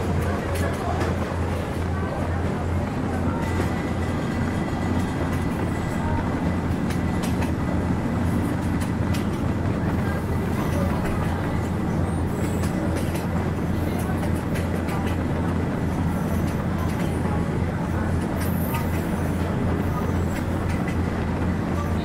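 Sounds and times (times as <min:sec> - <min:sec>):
train low rumble: 0:00.0 - 0:22.0
sharp clicks from wheels: 0:04.9 - 0:21.5.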